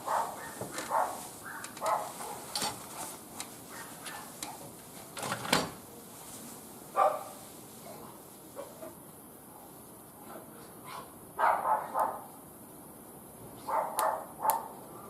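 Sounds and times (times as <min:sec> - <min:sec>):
short bark: 0:00.1 - 0:02.4, 0:07.0 - 0:07.4, 0:10.9 - 0:12.3, 0:13.6 - 0:15.0.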